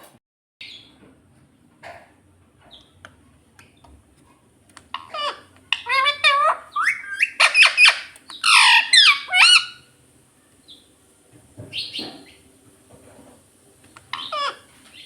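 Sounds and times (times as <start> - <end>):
parrot squawking: 4.9 - 9.9, 14.1 - 14.8
soft scratchy noise: 9.9 - 15.0.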